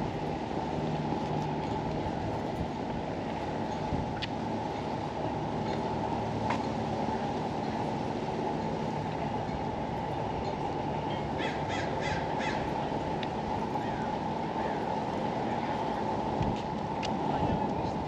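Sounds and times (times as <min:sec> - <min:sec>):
low outdoor rumble: 0:00.0 - 0:18.0
bird calling: 0:11.1 - 0:12.8.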